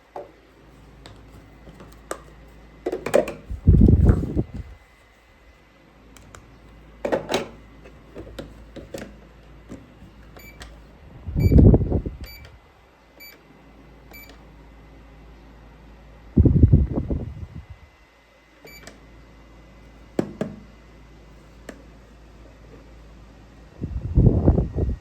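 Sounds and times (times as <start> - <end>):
short electronic beeps: 11.4 - 11.6.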